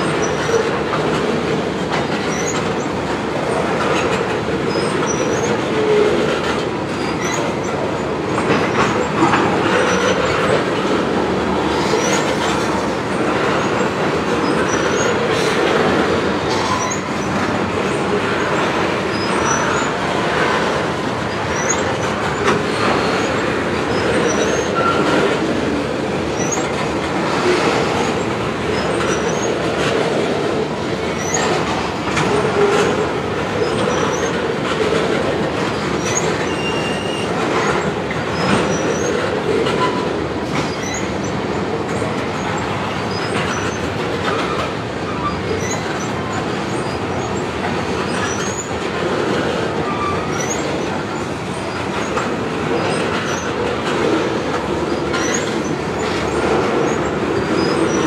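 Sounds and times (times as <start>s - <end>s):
steel wheels rumbling on rail: 0.0s - 58.0s
wheels clicking over rail joints: 0.0s - 58.0s
high wheel squeals: 16.5s - 17.4s, 21.3s - 25.2s, 36.0s - 37.4s.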